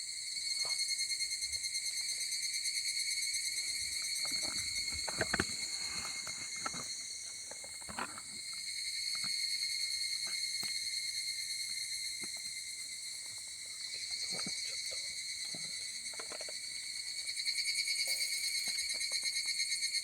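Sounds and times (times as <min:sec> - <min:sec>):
crickets and insects trilling: 0:00.0 - 0:20.0.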